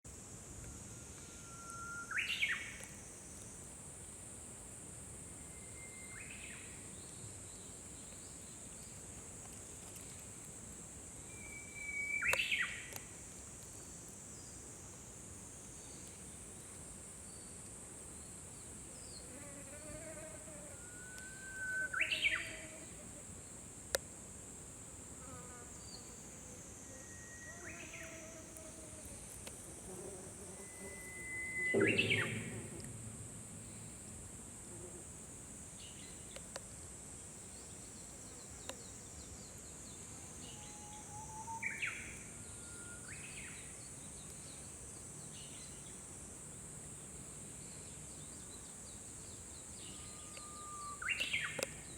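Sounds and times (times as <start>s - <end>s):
steady high hiss: 0.1s - 51.9s
bird singing whistled song: 1.2s - 2.8s, 5.5s - 6.6s, 11.3s - 12.8s, 20.8s - 22.5s, 30.6s - 32.7s, 40.5s - 43.6s, 49.9s - 51.6s.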